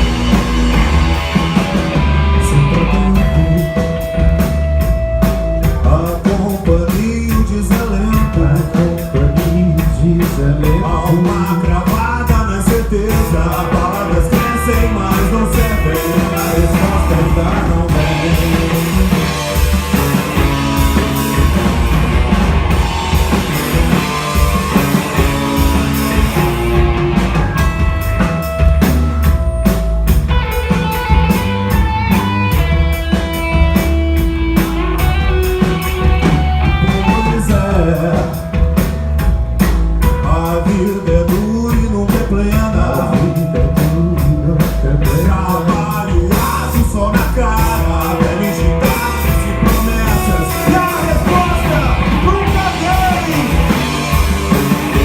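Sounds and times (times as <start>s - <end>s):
drum kit beat: 0.0s - 55.0s
rock band playing: 0.0s - 55.0s.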